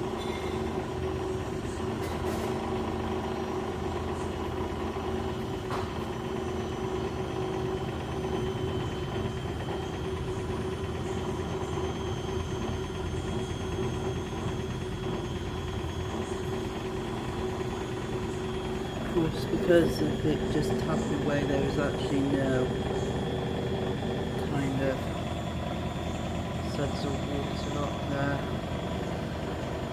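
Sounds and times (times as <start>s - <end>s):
washing machine spinning: 0.0s - 29.9s.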